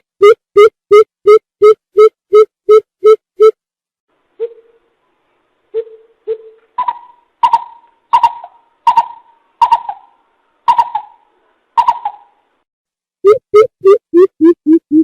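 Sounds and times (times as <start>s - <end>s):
coucal hooting: 5.8s - 12.4s.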